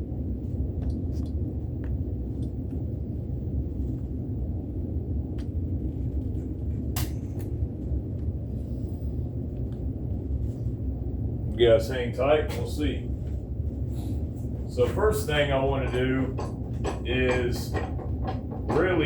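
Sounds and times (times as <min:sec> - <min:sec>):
steady low rumble: 0:00.0 - 0:19.0
light clicks and knocks: 0:14.8 - 0:19.0.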